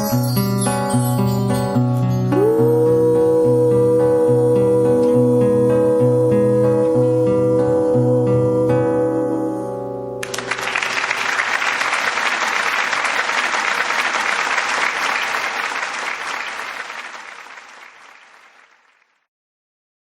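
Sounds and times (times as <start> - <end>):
audience applause: 10.2 - 19.2.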